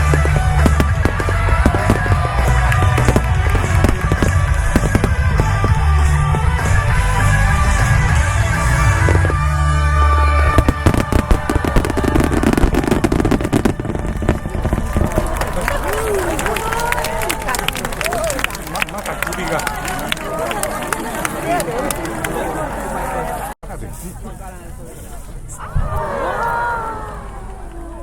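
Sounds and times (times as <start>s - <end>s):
rapid crackling bangs: 0.0s - 9.4s, 10.5s - 16.3s
music: 0.0s - 15.2s
fireworks booming: 0.0s - 16.4s.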